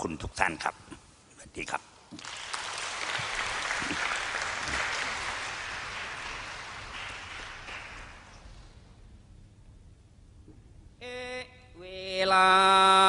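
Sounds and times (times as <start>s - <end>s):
audience applauding: 2.2s - 8.6s.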